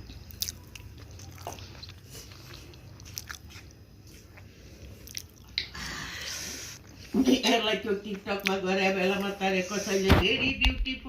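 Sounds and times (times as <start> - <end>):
person biting and chewing: 0.0 - 5.6.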